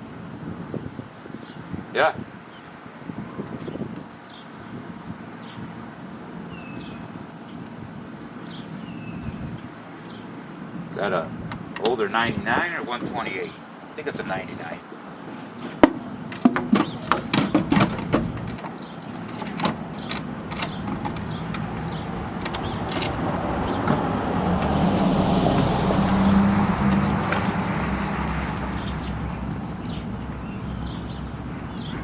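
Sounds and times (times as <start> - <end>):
clatter of clicks and knocks: 15.8 - 30.4
vehicle passing by: 19.4 - 32.0.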